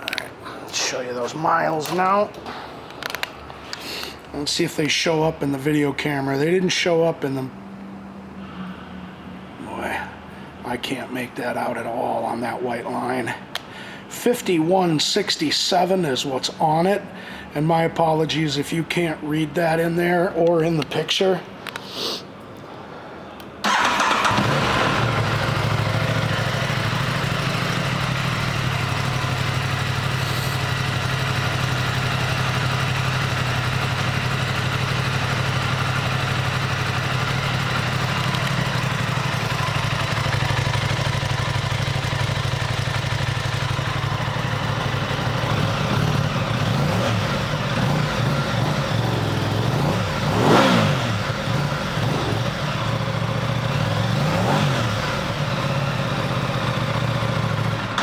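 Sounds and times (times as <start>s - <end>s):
motorcycle engine idling and revving: 23.7s - 58.0s.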